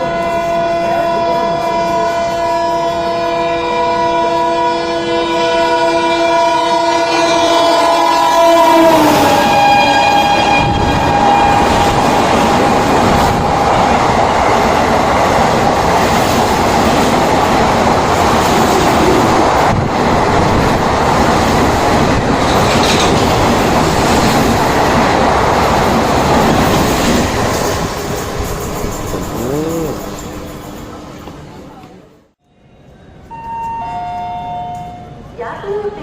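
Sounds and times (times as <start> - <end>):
train horn: 0.0 - 12.1
train rushing past: 0.0 - 36.0.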